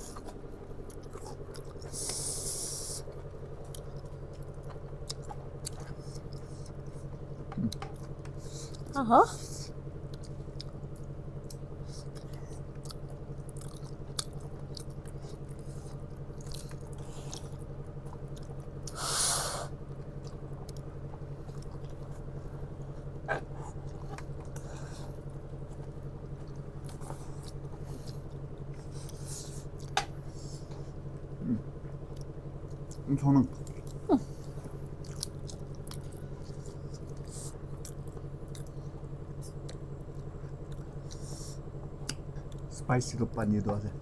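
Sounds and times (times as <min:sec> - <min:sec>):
steady low hum: 0:00.0 - 0:44.0
chewing clicks: 0:03.6 - 0:08.9, 0:10.1 - 0:19.0, 0:32.0 - 0:34.0, 0:35.0 - 0:38.8, 0:39.4 - 0:41.3, 0:42.0 - 0:42.7.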